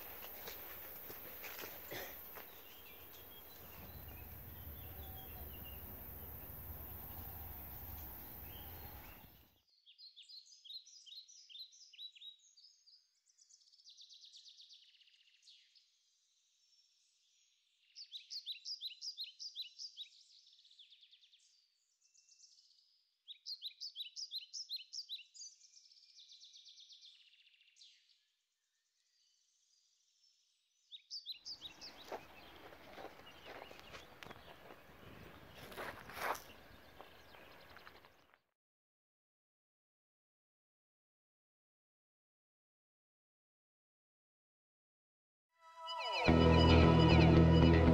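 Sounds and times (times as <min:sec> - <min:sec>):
soft bird trills and chatter: 0:31.0 - 0:38.3.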